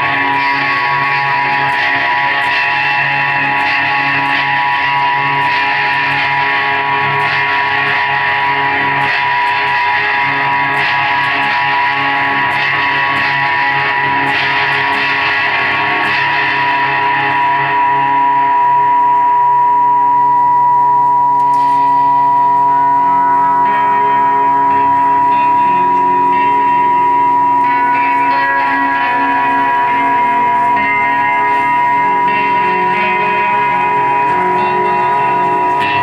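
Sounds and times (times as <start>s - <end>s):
electric guitar through effects: 0.0s - 36.0s
sustained droning tones: 19.3s - 36.0s.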